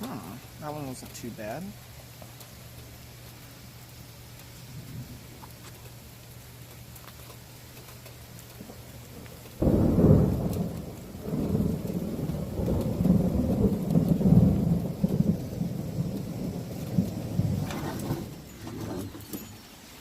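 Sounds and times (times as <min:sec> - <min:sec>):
low thunder rumble: 0:04.6 - 0:05.4, 0:08.6 - 0:19.1
thunder crack: 0:09.6 - 0:18.4.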